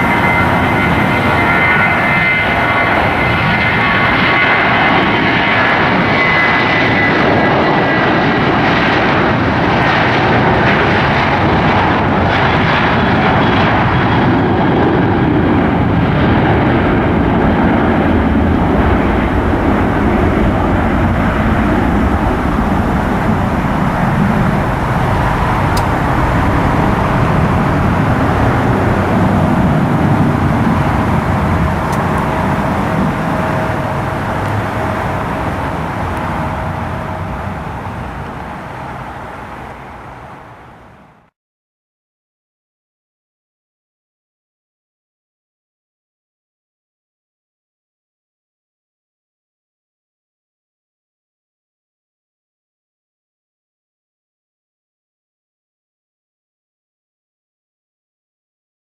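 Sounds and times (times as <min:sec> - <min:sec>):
airliner engines rushing: 0:00.0 - 0:41.3
high engine whine: 0:00.0 - 0:41.3.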